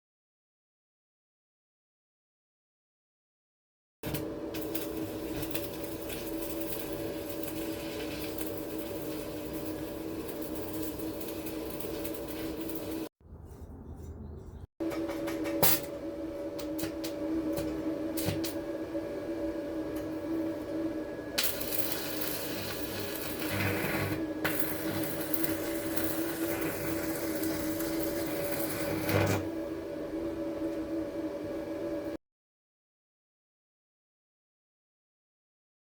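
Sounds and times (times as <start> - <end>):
electrical arcing crackle: 4.1 - 13.1, 21.4 - 29.5
electrical device humming: 4.1 - 13.1, 14.8 - 32.2.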